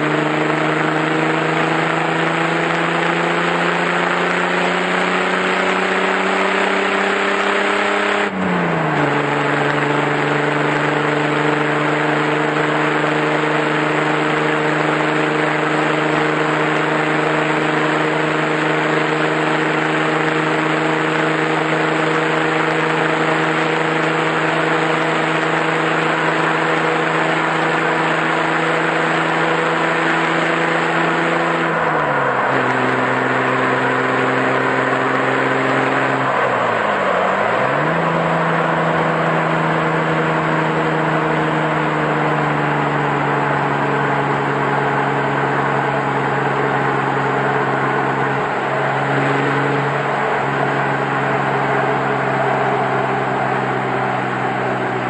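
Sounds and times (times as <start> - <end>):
car engine and exhaust driving: 0.0 - 55.0.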